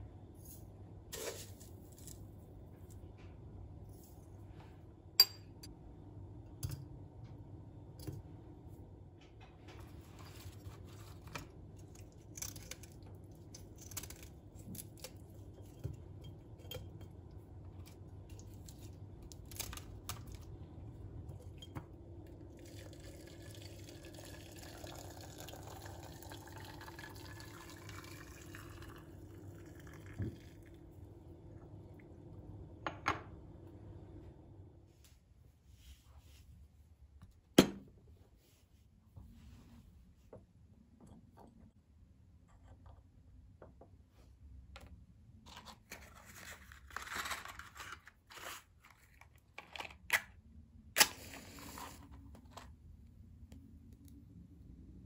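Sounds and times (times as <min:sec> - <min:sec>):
liquid poured into a glass: 0:22.5 - 0:30.8.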